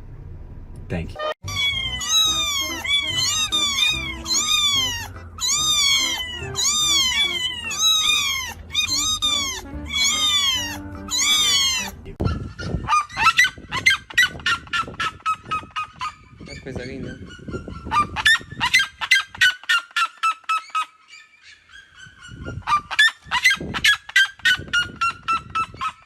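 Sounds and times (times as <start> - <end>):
pet's high calls: 1.4 - 26.0
background music: 2.0 - 12.2.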